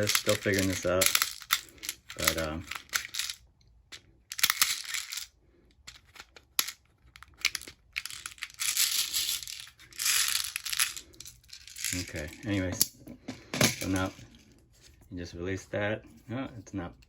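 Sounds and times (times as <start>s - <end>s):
plastic pellets rattling: 0.0s - 3.4s, 4.3s - 5.3s, 5.9s - 12.8s, 13.7s - 14.4s
plastic parts clicking: 0.0s - 5.3s, 5.9s - 14.3s.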